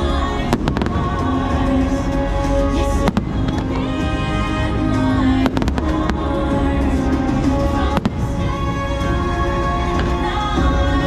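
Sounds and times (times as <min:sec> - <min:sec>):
show music with held notes: 0:00.0 - 0:11.0
fireworks bangs: 0:00.2 - 0:10.8.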